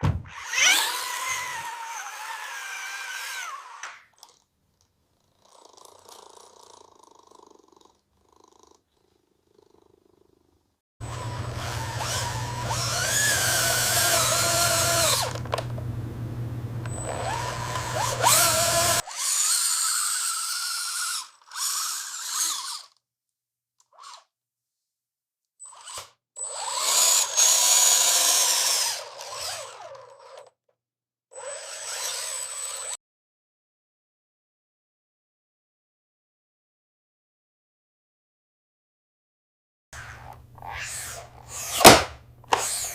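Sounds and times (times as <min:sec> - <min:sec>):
electric power drill whirring: 0:00.3 - 0:04.4, 0:11.0 - 0:15.9, 0:16.8 - 0:23.0, 0:25.6 - 0:30.5, 0:31.4 - 0:33.0, 0:40.0 - 0:42.9.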